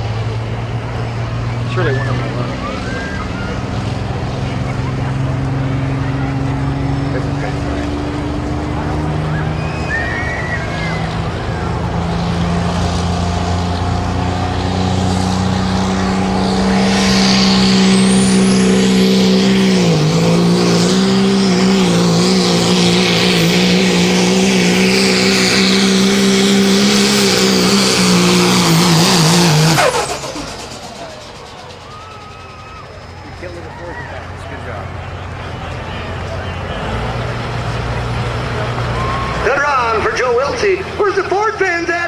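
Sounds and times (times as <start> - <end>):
truck engine under load: 0.0 - 42.0
high whine: 15.3 - 33.5.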